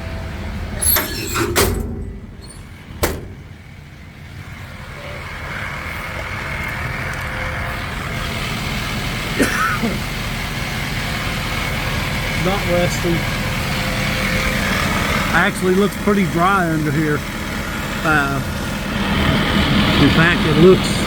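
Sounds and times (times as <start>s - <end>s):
truck engine idling: 0.0s - 21.0s
metal toolbox doors clunking: 0.7s - 3.7s.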